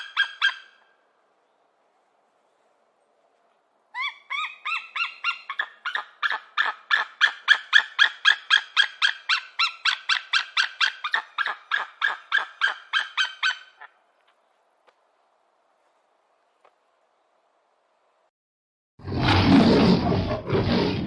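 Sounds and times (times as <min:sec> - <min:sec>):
animal squeaky calls: 0:00.0 - 0:00.8, 0:04.0 - 0:13.9.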